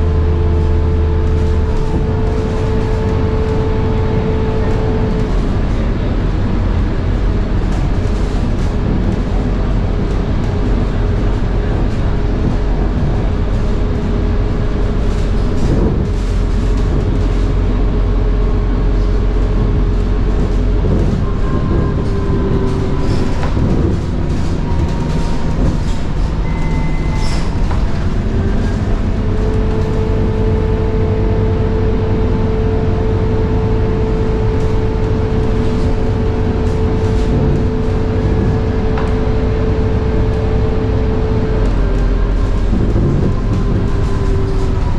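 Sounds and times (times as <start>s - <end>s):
bus engine drone: 0.0s - 44.9s
rattles and knocks: 7.1s - 31.9s, 34.2s - 44.9s.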